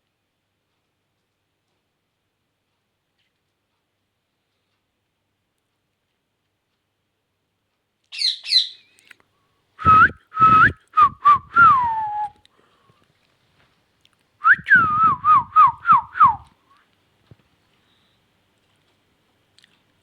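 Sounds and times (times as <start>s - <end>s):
parrot chirping and whistling: 8.1s - 9.0s.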